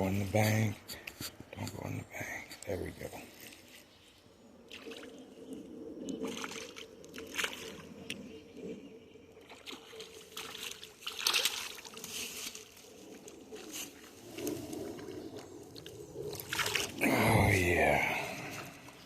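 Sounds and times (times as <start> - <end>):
fish splashing in water: 9.4 - 12.8, 15.8 - 17.0.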